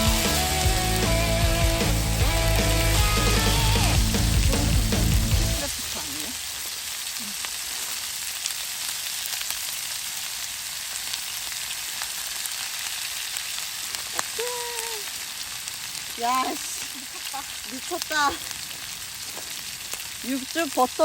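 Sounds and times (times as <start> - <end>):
background music: 0.0 - 5.7
steak sizzling in a pan: 0.0 - 21.0.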